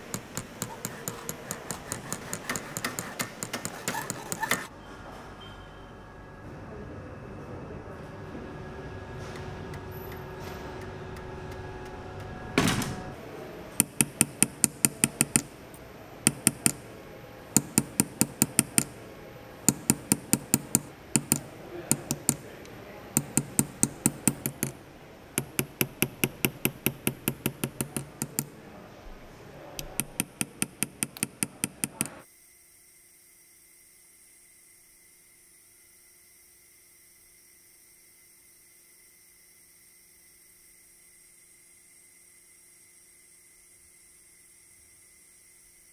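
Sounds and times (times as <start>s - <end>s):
workshop hum: 0.0s - 32.2s
heavy thud: 12.4s - 13.2s
hammer striking silver: 13.8s - 24.8s, 25.4s - 28.6s, 29.8s - 32.2s.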